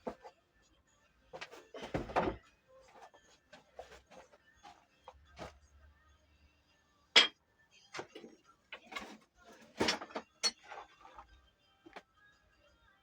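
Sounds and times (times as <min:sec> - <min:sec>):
tools and metal parts clinking: 0:08.0 - 0:11.0.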